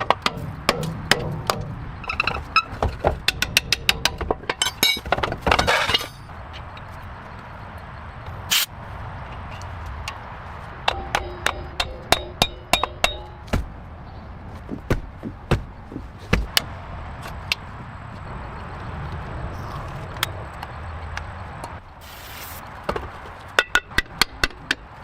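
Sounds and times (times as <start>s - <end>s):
metal tools clinking: 4.5s - 6.3s
scattered knocks: 10.8s - 13.7s, 14.6s - 16.6s.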